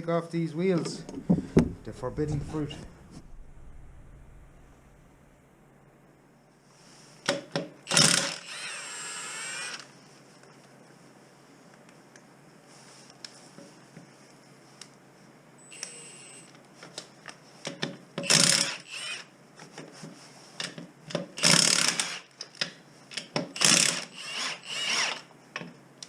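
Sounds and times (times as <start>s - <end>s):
impact wrench bursts: 7.9s - 9.9s, 18.2s - 19.3s, 21.4s - 22.3s, 23.6s - 25.3s.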